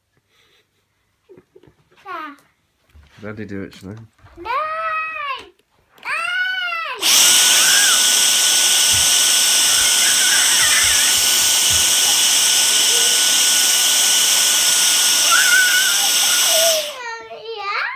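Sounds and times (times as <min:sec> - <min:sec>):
vacuum cleaner bumping: 0:07.0 - 0:17.0
vacuum cleaner running: 0:07.0 - 0:17.1.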